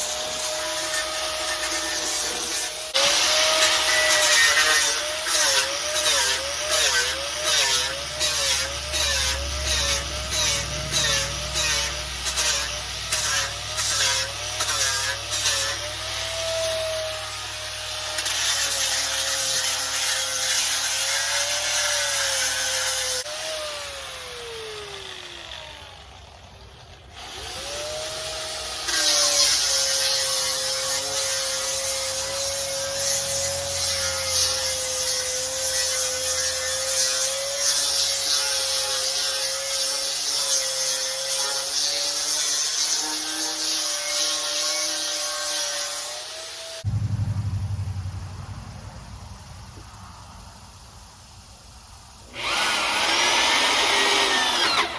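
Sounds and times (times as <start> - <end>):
disc grinder sanding wood: 0.0 - 23.5.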